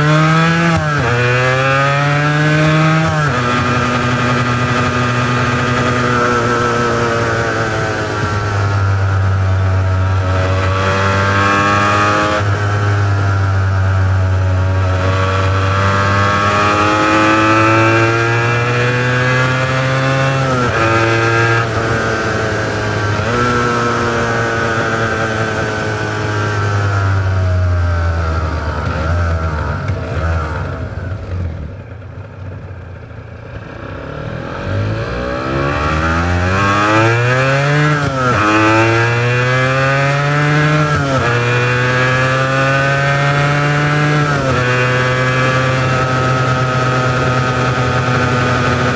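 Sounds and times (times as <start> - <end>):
two-stroke engine accelerating: 0.0 - 48.9.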